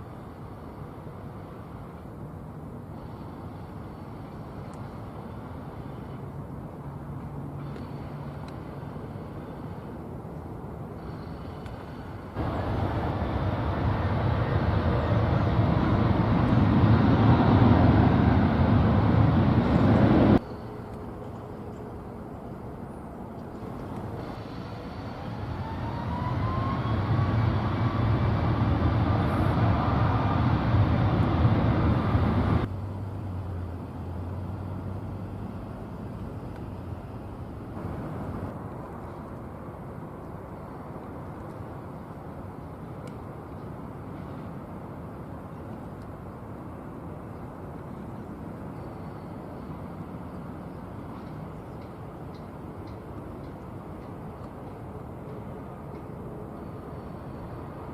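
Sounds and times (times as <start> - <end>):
jet airliner passing close: 12.4 - 20.9, 24.0 - 32.7
whine gliding upward: 24.6 - 32.7.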